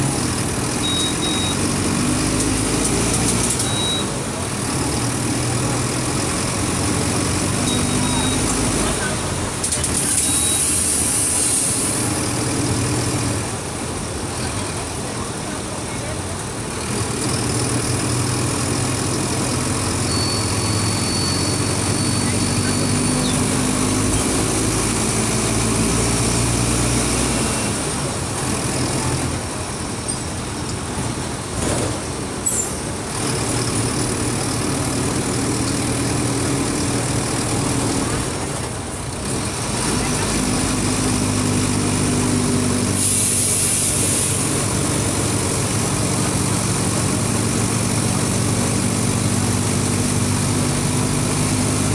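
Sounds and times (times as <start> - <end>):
bus diesel engine pulling under load: 0.0 - 51.9
sharp hiss of air: 43.0 - 44.5.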